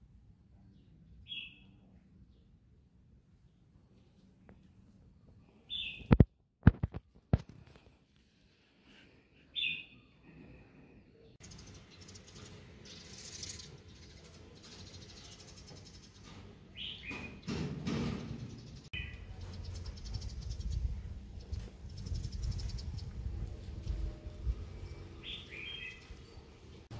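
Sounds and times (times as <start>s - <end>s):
short bird chirps: 5.6s - 6.2s, 9.5s - 10.3s
outdoor background hiss: 10.7s - 19.7s.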